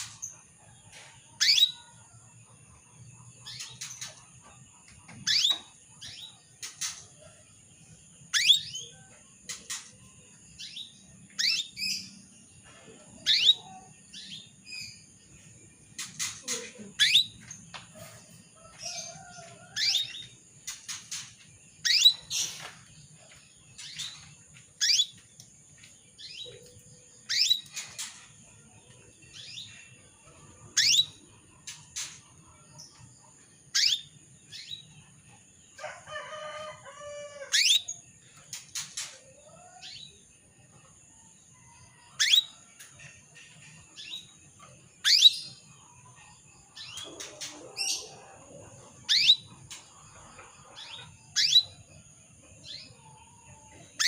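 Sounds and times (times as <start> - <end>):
canary chirping: 1.4 - 2.0, 5.1 - 7.1, 8.2 - 12.3, 13.2 - 15.2, 15.9 - 17.7, 18.8 - 28.5, 29.3 - 32.4, 33.7 - 35.0, 37.5 - 39.2, 42.2 - 42.6, 43.3 - 48.1, 48.7 - 52.0.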